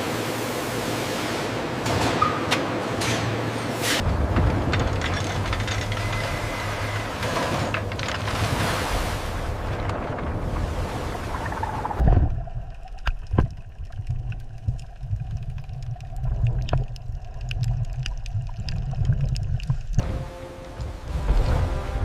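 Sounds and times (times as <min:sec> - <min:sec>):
low underwater water rumble: 0:08.2 - 0:20.1
sharp clicks and pops: 0:11.9 - 0:20.0.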